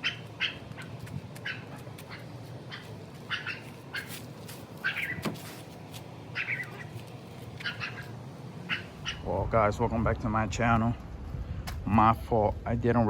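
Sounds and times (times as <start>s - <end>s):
short high-pitched animal calls: 0.0s - 4.2s, 4.8s - 5.3s, 6.3s - 7.0s, 7.6s - 9.3s
low background hum: 0.0s - 13.0s.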